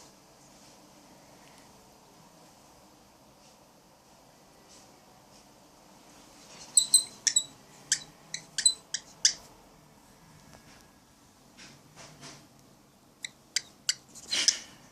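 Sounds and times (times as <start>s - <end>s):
cockatiel chirping: 6.7s - 9.4s, 13.2s - 14.7s.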